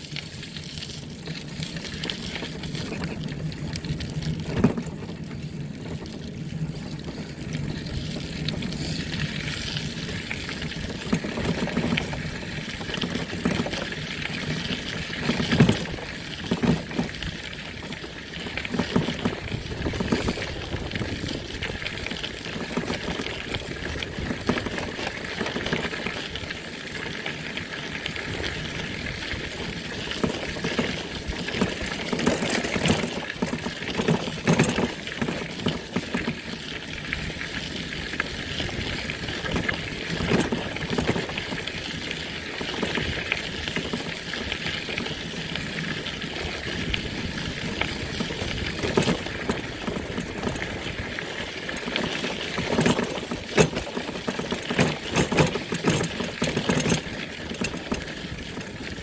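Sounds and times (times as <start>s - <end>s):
vehicle engine and tyres rumbling: 0.0s - 59.0s
knocks and rattles: 30.2s - 36.4s, 39.4s - 41.6s, 48.1s - 51.0s, 51.7s - 58.8s.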